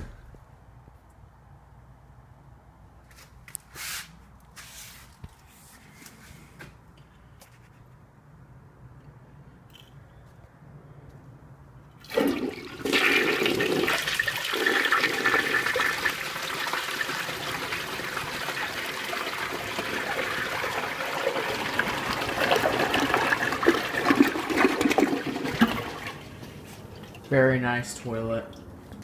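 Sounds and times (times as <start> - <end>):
toilet flushing: 12.0 - 27.3.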